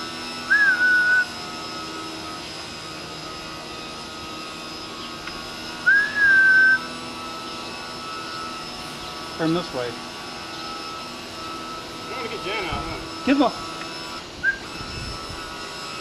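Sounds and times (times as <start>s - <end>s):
electric motor whine: 0.0s - 16.0s
loud high whistle: 0.4s - 1.4s, 5.8s - 6.9s, 14.4s - 15.3s.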